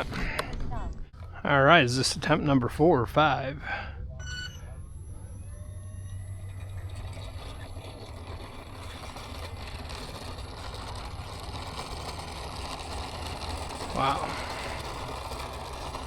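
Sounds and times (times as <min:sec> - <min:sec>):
model plane electric motor whining: 0:04.3 - 0:16.0.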